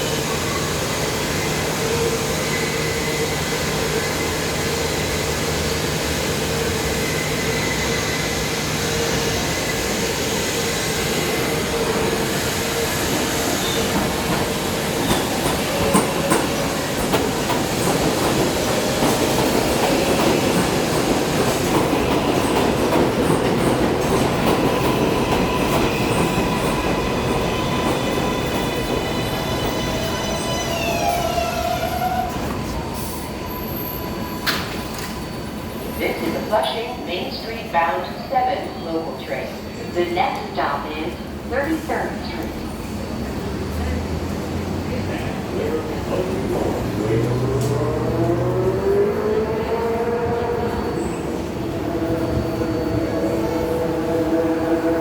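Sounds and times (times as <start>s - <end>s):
subway train rail rumble: 0.0s - 55.0s.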